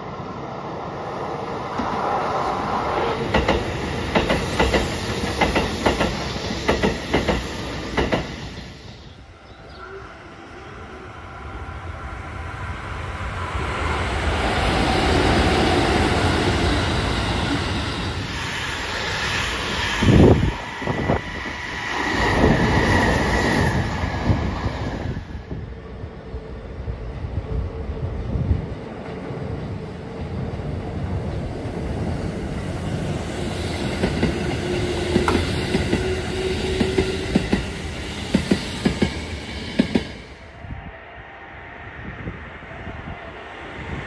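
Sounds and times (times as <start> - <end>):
train rumble and hiss: 0.0 - 44.0
train wheels clacking on rail joints: 3.2 - 8.6, 33.8 - 40.2.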